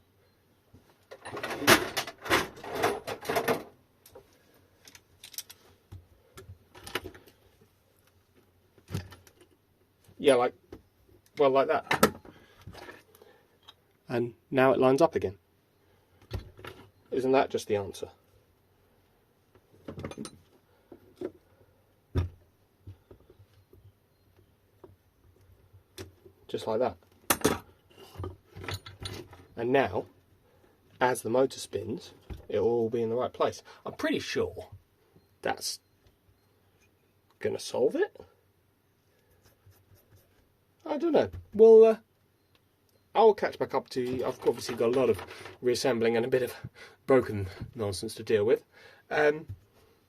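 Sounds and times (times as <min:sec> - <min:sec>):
metal parts clattering and scraping: 0:01.1 - 0:03.7, 0:27.3 - 0:29.5, 0:44.0 - 0:45.6.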